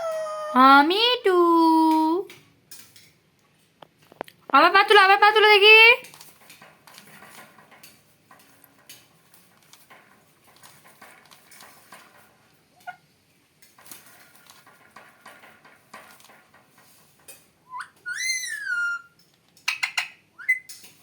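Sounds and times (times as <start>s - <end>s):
faint clicks and scratches: 6.0s - 17.6s
parrot whistled call: 17.7s - 20.7s.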